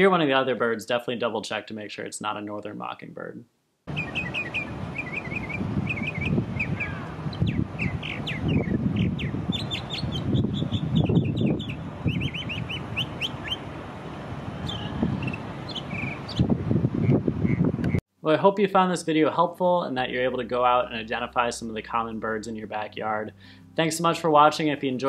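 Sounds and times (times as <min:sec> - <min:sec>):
mockingbird singing: 0:03.9 - 0:13.6, 0:14.6 - 0:17.6.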